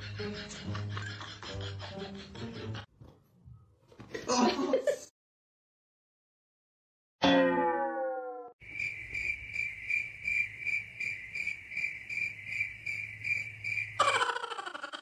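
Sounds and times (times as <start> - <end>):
falling pitched tone: 7.2 - 8.6
cricket chirping: 8.6 - 15.0.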